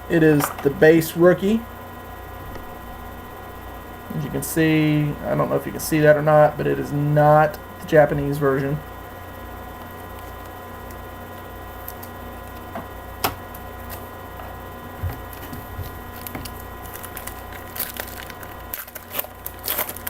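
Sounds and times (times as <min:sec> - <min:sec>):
electrical hum: 0:00.0 - 0:20.0
wrapper crinkling and tearing: 0:15.3 - 0:20.0.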